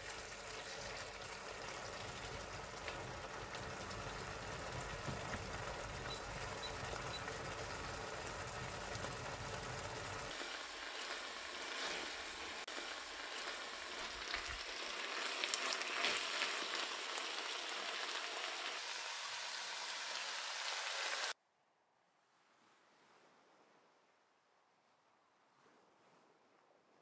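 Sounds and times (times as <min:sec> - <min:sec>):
meat sauce sizzling in a frying pan: 0:00.0 - 0:21.4
wooden spatula stirring and scraping: 0:10.1 - 0:13.7.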